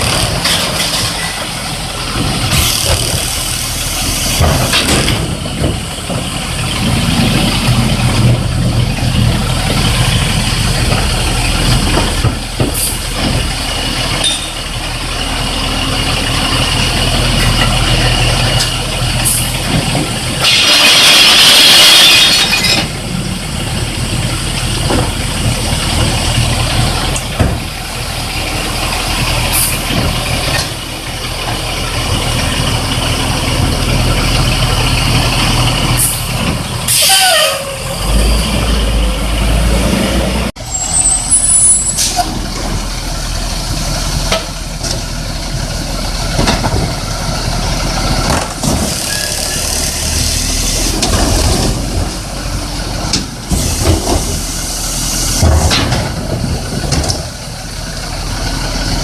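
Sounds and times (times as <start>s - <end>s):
garbage truck diesel engine: 0.0s - 59.0s.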